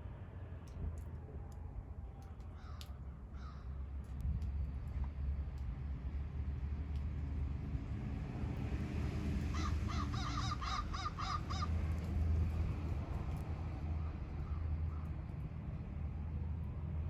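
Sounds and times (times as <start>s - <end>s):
crow cawing: 2.6s - 3.7s, 9.5s - 11.8s.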